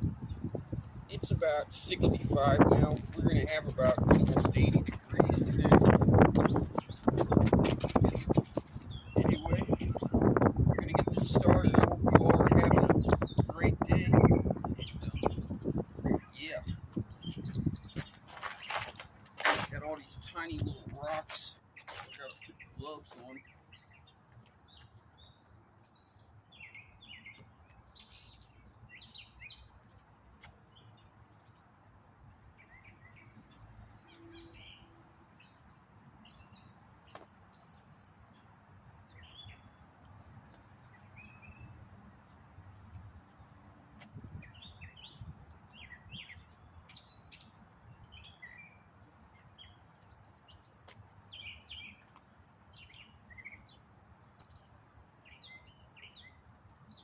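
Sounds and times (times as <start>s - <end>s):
wind rumble on microphone: 0.0s - 18.2s, 19.5s - 21.4s, 44.0s - 47.2s
songbirds chirping: 0.0s - 57.0s.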